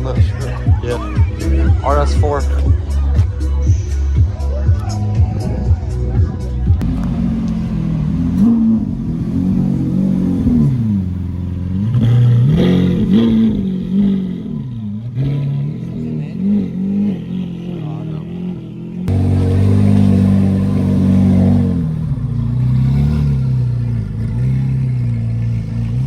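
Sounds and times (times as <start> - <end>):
car engine revving: 6.8 - 26.0
loud engine drone: 6.8 - 26.0.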